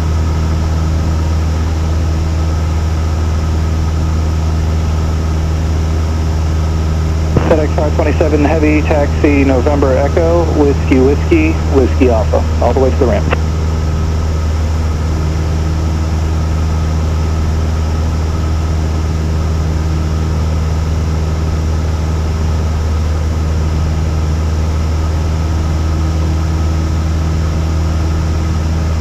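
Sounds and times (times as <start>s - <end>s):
propeller plane engine droning: 0.0s - 29.0s.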